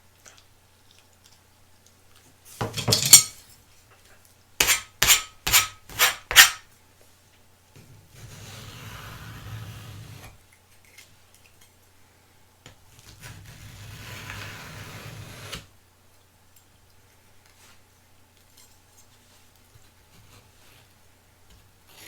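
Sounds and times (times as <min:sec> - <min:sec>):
scraping against hard surface: 0:02.6 - 0:03.4, 0:04.6 - 0:06.7.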